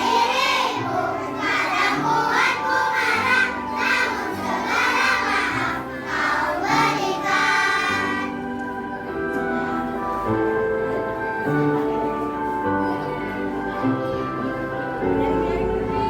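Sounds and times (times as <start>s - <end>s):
children's choir singing: 0.0s - 16.0s
instrumental accompaniment with bass: 8.3s - 16.0s.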